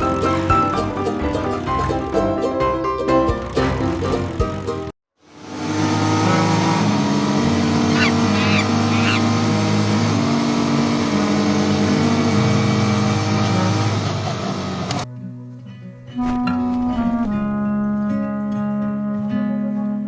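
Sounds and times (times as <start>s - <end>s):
vehicle engine running: 0.0s - 5.0s
short high squeaks: 7.9s - 9.2s.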